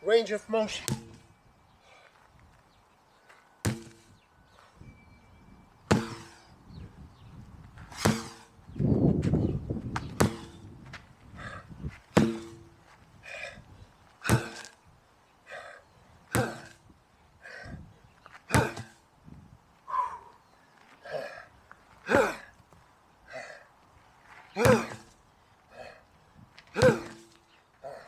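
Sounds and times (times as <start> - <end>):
sledgehammer striking: 0.8 - 1.3, 3.7 - 4.1, 5.9 - 6.5, 7.9 - 8.5, 10.1 - 10.8, 12.1 - 12.9, 14.2 - 14.7, 16.3 - 16.8, 18.5 - 19.0, 24.6 - 25.1, 26.8 - 27.4
hard breathing: 1.7 - 2.3, 11.3 - 11.8, 13.1 - 14.7, 15.4 - 16.0, 17.3 - 17.9, 20.9 - 22.6, 23.2 - 23.8, 25.7 - 26.2.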